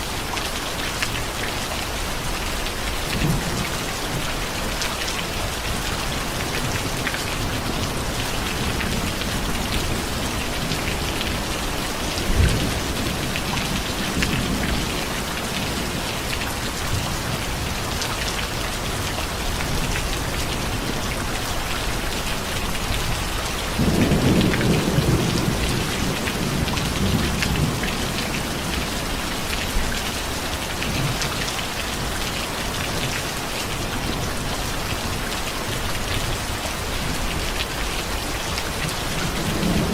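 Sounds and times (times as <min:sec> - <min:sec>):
steady rain: 0:00.0 - 0:39.9
thunder rumbling: 0:23.1 - 0:29.9, 0:38.8 - 0:39.9.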